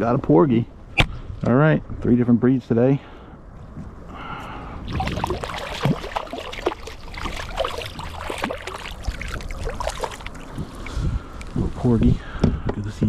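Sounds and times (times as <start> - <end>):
water splashing and dripping: 4.9 - 11.6.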